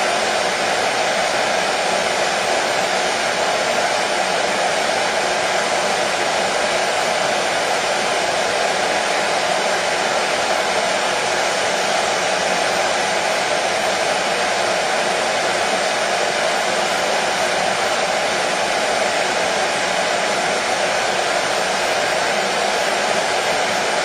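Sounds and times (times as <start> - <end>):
hair dryer running: 0.0 - 24.0.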